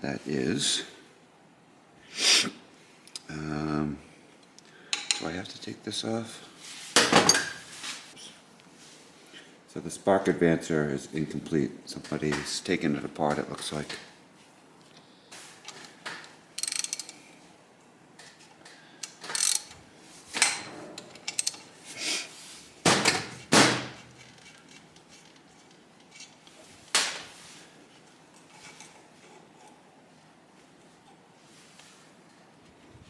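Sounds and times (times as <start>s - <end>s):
metallic clicks and clanks of tools: 16.6s - 17.2s, 19.0s - 19.8s, 20.4s - 21.7s.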